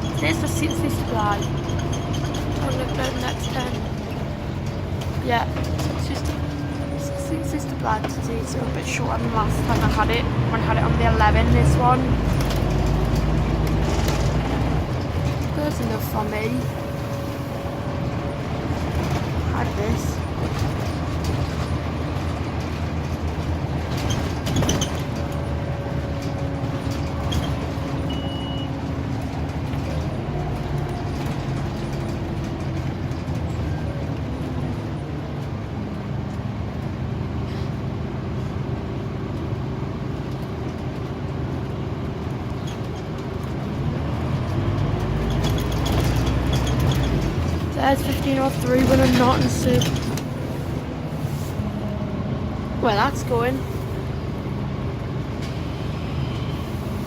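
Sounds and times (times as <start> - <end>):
knocks and rattles: 0.0 - 16.6, 18.3 - 33.6, 42.5 - 50.5
bus engine humming: 0.0 - 57.0.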